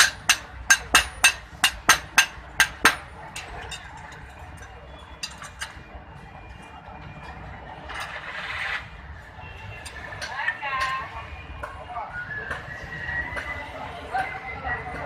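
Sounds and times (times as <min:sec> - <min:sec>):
hammer striking metal on anvil: 0:00.0 - 0:03.8.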